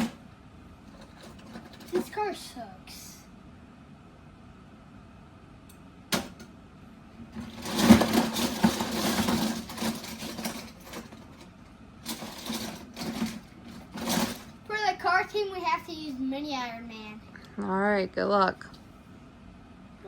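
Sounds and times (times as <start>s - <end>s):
toy cars rolling and rattling: 0.9s - 2.2s, 7.4s - 14.6s.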